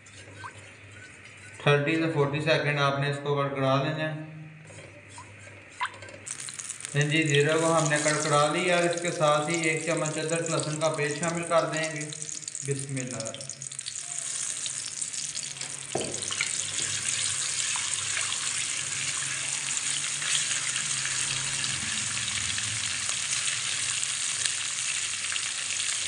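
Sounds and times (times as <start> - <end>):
spatula stirring: 6.3 - 12.7
spices sizzling in hot oil: 6.3 - 26.0.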